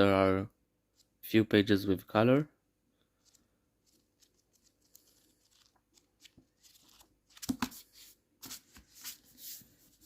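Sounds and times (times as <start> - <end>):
book pages rustling: 3.1 - 10.0.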